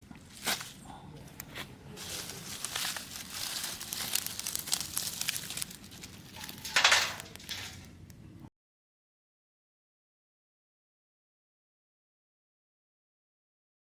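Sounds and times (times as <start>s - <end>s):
dry wood crackling: 0.0s - 8.4s.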